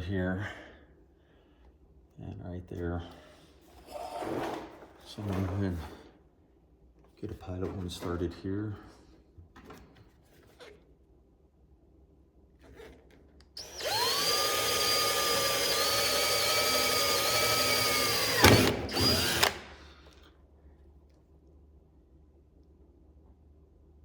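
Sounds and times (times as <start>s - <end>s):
electric drill whining: 13.6s - 19.9s.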